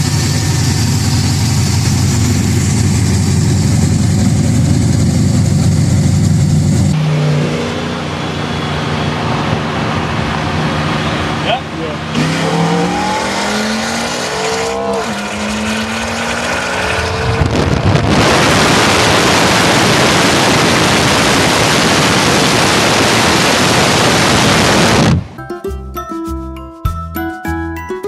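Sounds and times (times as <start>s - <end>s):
car engine accelerating: 0.0s - 25.3s
loud even rush of noise: 2.8s - 25.4s.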